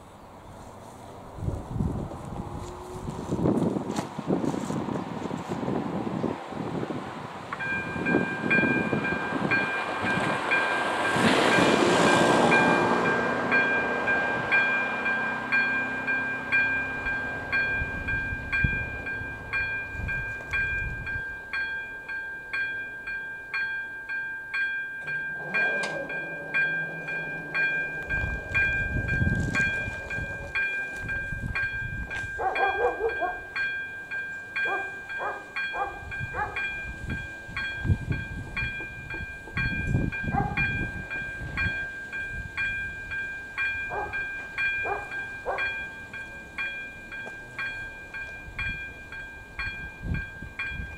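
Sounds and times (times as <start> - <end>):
low engine hum: 0.0 - 21.2, 25.0 - 33.4
level crossing bell ringing: 7.6 - 50.9
wheel squeals: 25.0 - 31.1
train wheel clacks and rumbling: 25.0 - 33.2, 35.1 - 42.8.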